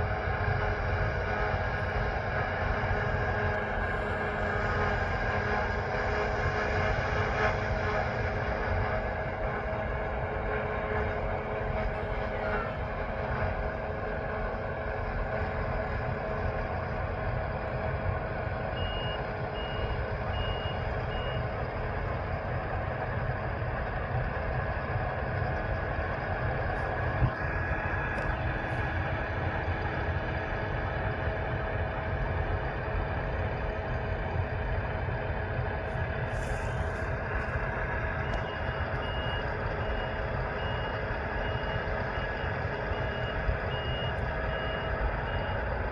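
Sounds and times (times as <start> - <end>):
harvest machinery droning: 0.0 - 45.9
reversing alarm beeping: 17.8 - 22.2, 36.0 - 45.9.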